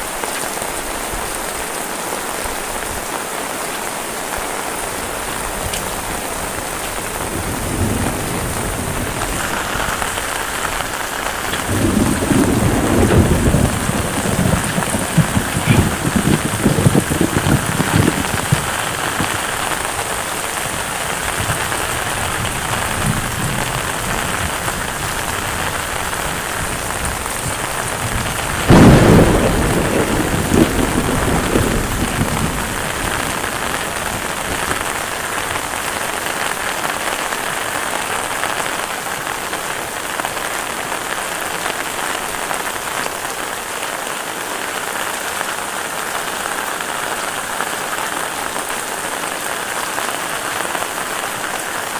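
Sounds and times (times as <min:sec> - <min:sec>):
heavy rain: 0:00.0 - 0:51.9
thunder clap rumbling: 0:05.2 - 0:36.5.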